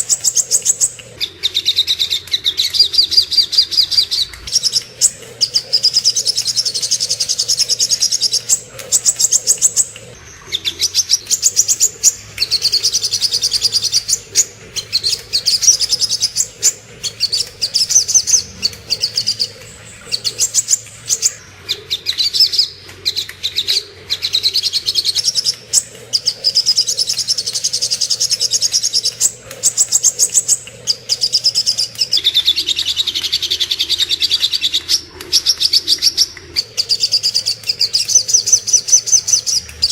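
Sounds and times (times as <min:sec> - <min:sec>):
bird chattering song: 0:00.0 - 0:39.9
faint low hum: 0:00.0 - 0:39.9.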